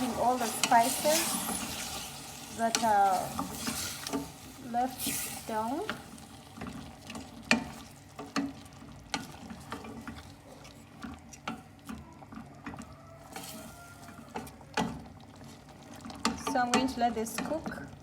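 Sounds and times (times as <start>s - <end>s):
utensil scraping a pan: 0.0s - 5.7s, 13.3s - 14.2s
light sizzle: 0.0s - 18.0s.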